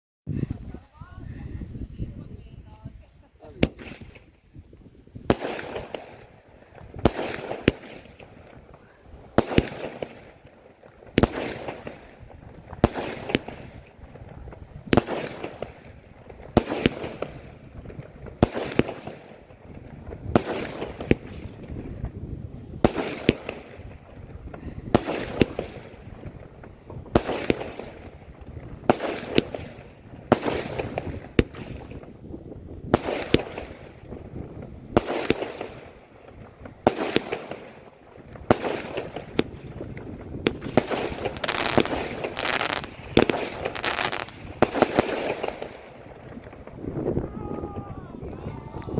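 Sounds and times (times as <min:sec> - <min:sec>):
fireworks banging: 0:02.4 - 0:48.9.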